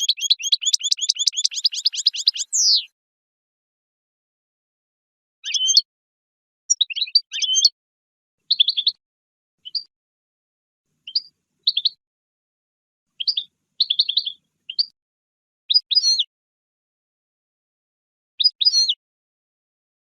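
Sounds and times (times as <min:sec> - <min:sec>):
goldfinch twittering song: 0:00.0 - 0:02.9, 0:05.4 - 0:05.9, 0:06.7 - 0:07.8, 0:08.5 - 0:09.0, 0:09.6 - 0:09.9, 0:11.0 - 0:12.0, 0:13.2 - 0:15.0, 0:15.7 - 0:16.3, 0:18.4 - 0:19.0.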